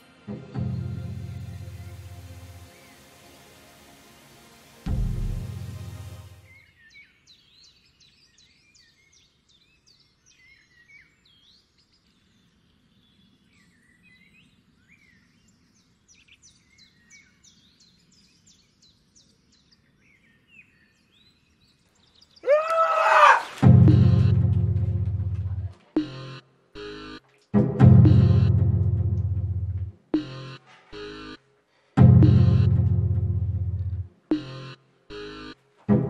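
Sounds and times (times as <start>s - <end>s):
deep boom: 4.9s - 6.0s, 23.6s - 25.7s.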